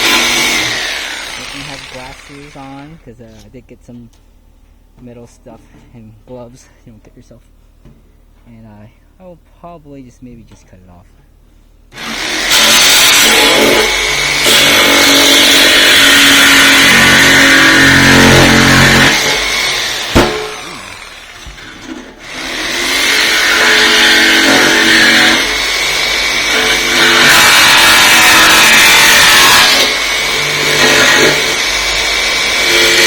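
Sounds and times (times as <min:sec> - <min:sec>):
jigsaw cutting through metal: 0:00.0 - 0:02.9, 0:11.9 - 0:33.0.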